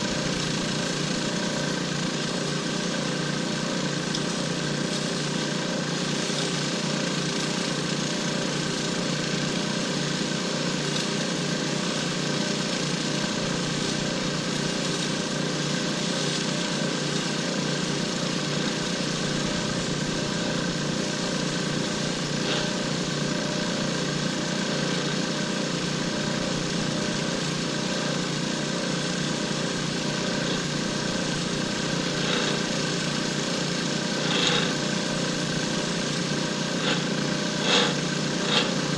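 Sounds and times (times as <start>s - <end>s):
lathe motor hum: 0.0s - 38.9s
hiss of cutting: 16.9s - 38.9s.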